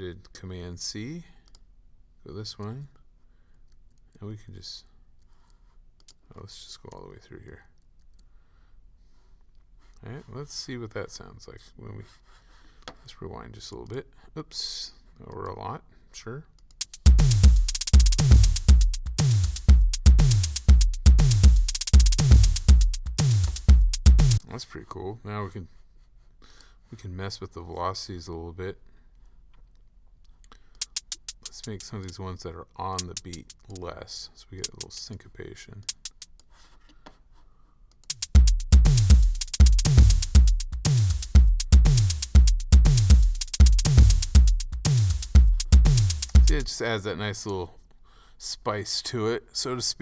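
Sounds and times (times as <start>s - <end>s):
fast high hi-hat ticks: 16.7s - 24.4s, 30.8s - 32.2s, 33.0s - 33.9s, 34.6s - 35.2s, 35.8s - 36.5s, 37.9s - 46.7s
electronic bass drum hits: 16.8s - 24.4s, 38.1s - 46.7s.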